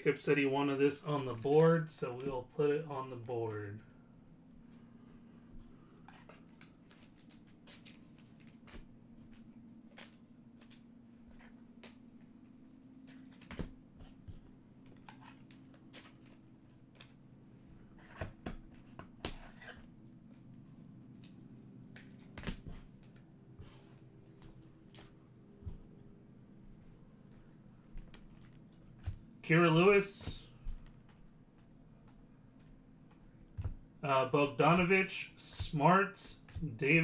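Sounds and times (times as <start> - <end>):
low steady hum: 0.0 - 37.0
cards clicking and rustling: 1.0 - 2.3, 6.0 - 12.3, 13.0 - 17.2, 21.2 - 26.0.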